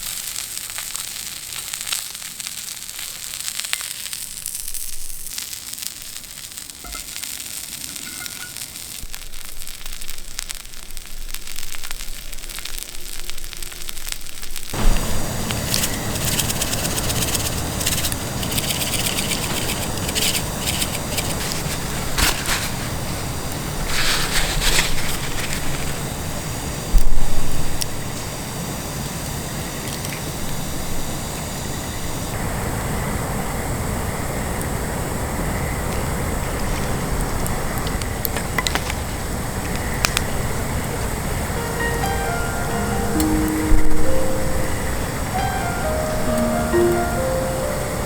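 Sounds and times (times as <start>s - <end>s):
meat sizzling on a griddle: 0.0s - 32.4s
campfire crackling: 0.0s - 47.9s
loud steady rushing noise: 14.8s - 29.7s.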